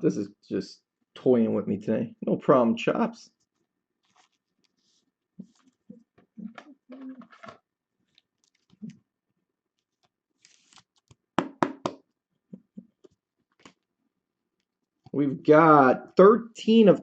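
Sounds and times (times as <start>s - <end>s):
cards and packaging rustling: 4.0s - 9.0s, 9.8s - 11.3s.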